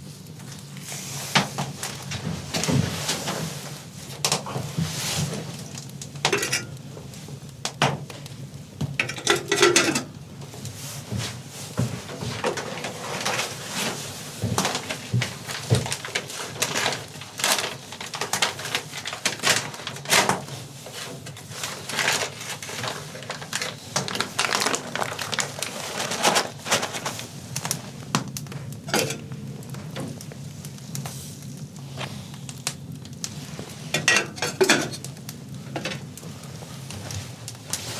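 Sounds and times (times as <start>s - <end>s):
metal pots and pans clinking: 6.2s - 6.8s, 9.0s - 10.1s, 28.9s - 29.3s, 34.0s - 35.1s.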